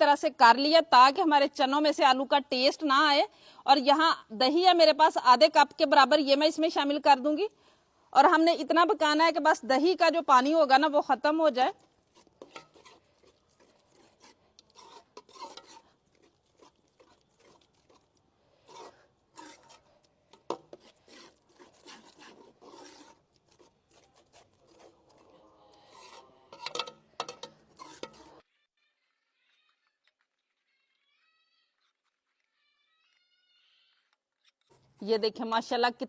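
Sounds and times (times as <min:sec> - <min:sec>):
spoon scraping a pan: 0:09.9 - 0:28.4.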